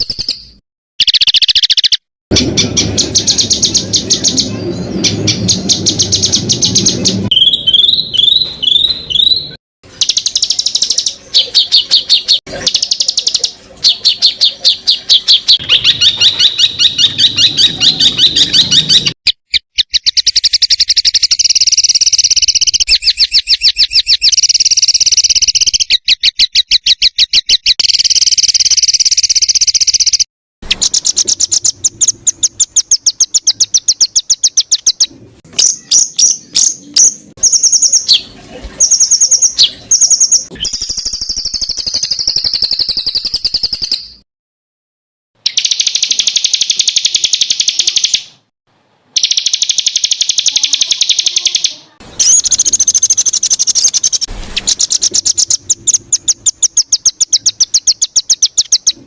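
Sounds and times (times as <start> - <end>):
songbird rapid repeated high notes: 45.5 - 48.4, 49.2 - 58.9.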